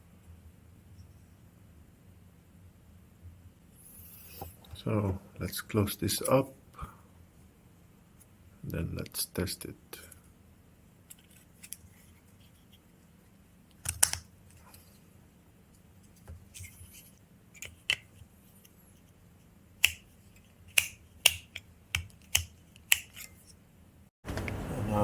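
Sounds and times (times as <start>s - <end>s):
small parts clicking and snapping: 13.7s - 14.3s, 19.8s - 23.5s.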